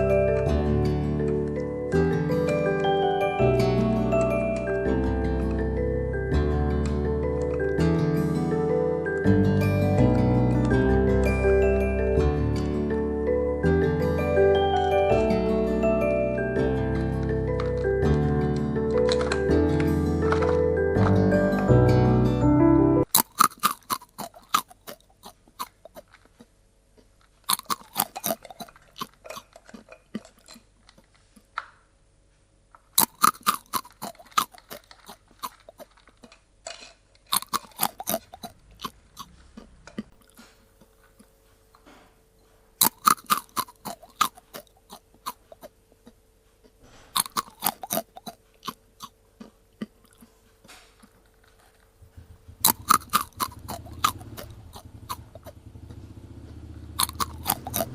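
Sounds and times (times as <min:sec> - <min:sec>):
cat crunching dry kibble: 0:17.5 - 0:20.8, 0:23.1 - 0:31.6, 0:32.9 - 0:41.4, 0:42.8 - 0:45.7, 0:47.1 - 0:55.6, 0:57.0 - 0:57.9.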